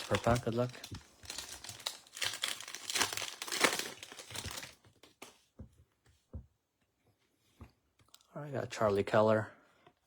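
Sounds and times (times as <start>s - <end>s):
wrapper tearing and crinkling: 0.0s - 5.3s.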